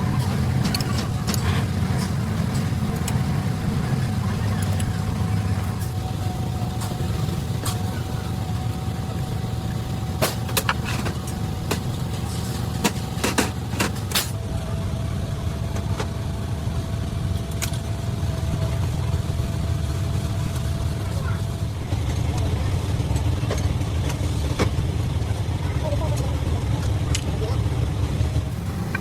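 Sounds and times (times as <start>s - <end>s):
low motor rumble: 0.0s - 29.0s
sharp metallic clicks and knocks: 10.0s - 14.4s.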